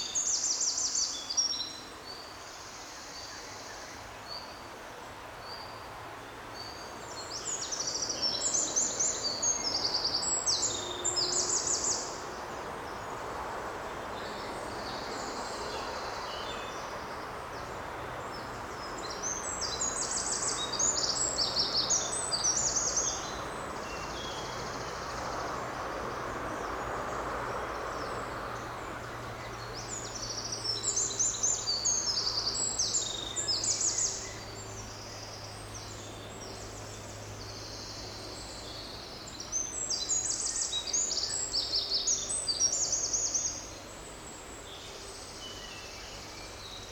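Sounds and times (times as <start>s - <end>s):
songbird singing: 0.0s - 4.6s, 5.4s - 46.9s
forest background hiss: 0.0s - 46.9s.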